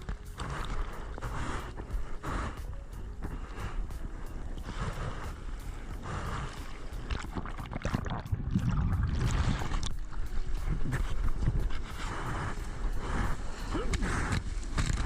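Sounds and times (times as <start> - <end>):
sea water splashing: 4.4 - 15.0.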